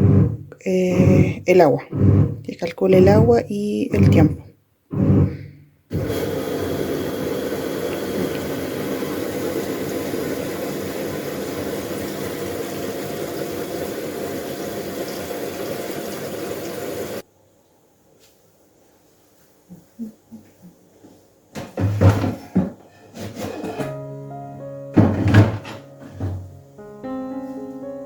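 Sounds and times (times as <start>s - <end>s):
washing machine filling with water: 5.9s - 17.2s.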